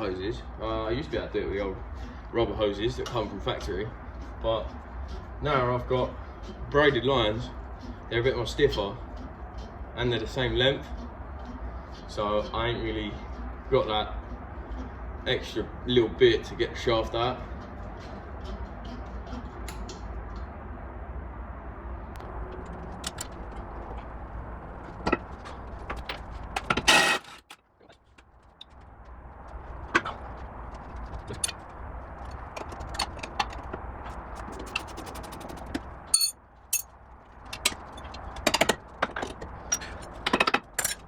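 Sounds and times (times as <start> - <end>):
steady low hum: 0.0 - 41.0
metal tools clinking: 36.1 - 36.9, 37.6 - 41.0.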